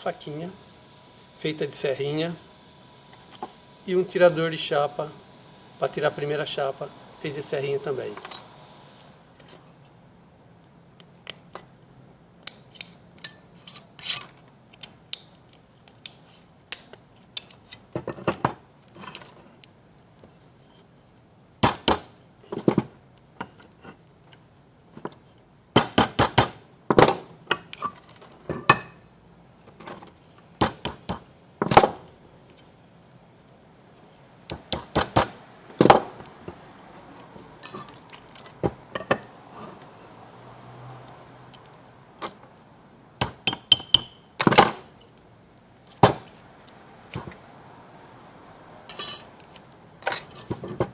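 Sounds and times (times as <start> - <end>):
sharp metallic clicks and clinks: 12.5 - 15.3, 48.9 - 50.9.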